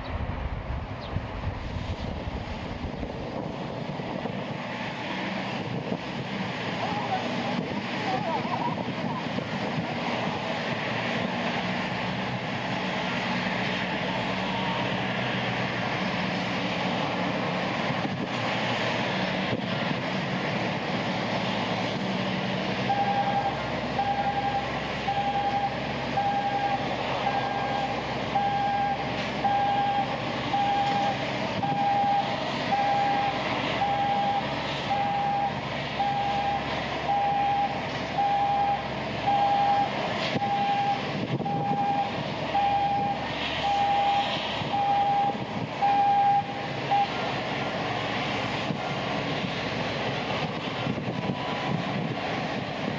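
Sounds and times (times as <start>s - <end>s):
jet engines running: 0.0s - 52.9s
reversing alarm beeping: 22.9s - 47.2s.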